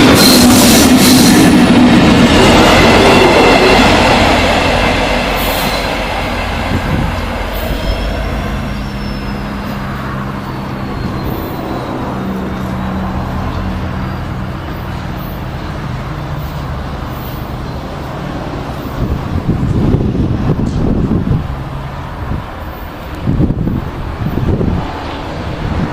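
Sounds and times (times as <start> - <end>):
wind buffeting microphone: 0.0 - 13.9, 18.4 - 25.9
diesel train rumbling past: 0.0 - 25.9
wheel squeal: 6.8 - 15.8.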